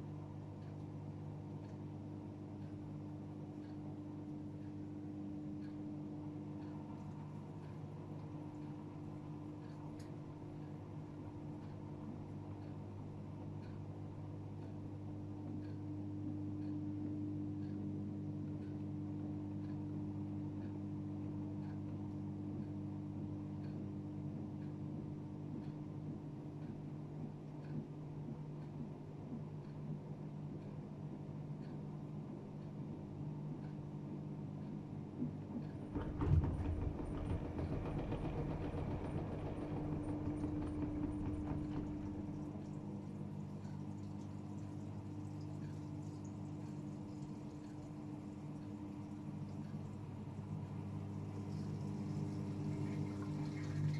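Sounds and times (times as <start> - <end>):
washing machine humming: 0.0 - 53.9
faint ticking: 0.2 - 53.9
washing machine drum tumbling: 35.4 - 45.7, 46.5 - 53.9.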